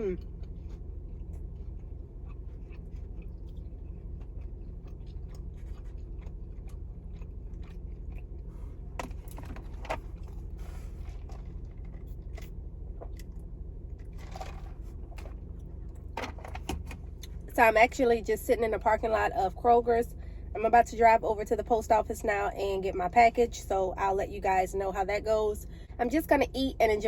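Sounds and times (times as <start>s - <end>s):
chewing crispy sandwich: 0.0s - 16.2s
steady low hum: 0.0s - 27.0s.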